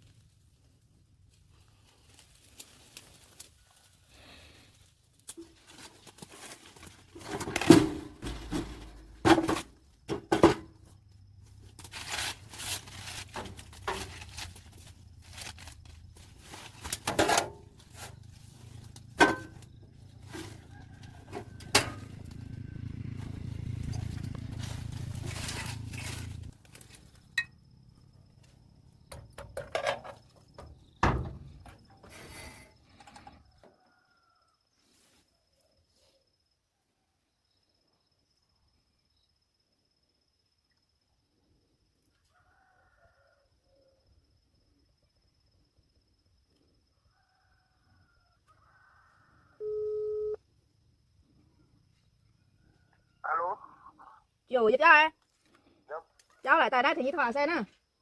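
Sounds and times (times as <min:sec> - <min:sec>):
handling knocks and scrapes: 0:05.4 - 0:11.0, 0:11.7 - 0:22.4, 0:23.2 - 0:27.5
low steady hum: 0:49.6 - 0:50.4.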